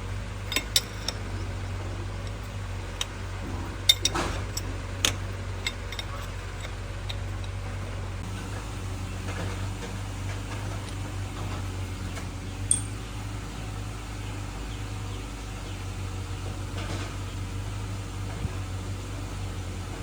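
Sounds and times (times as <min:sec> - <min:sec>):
low mechanical hum: 0:00.0 - 0:20.0
sharp metallic clink: 0:12.7 - 0:13.0.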